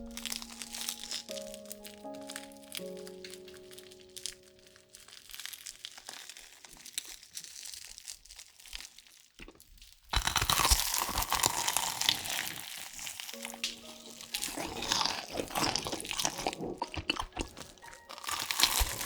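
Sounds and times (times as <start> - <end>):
background music: 0.0 - 5.3, 10.2 - 19.0
crinkling and crunching: 0.0 - 19.0.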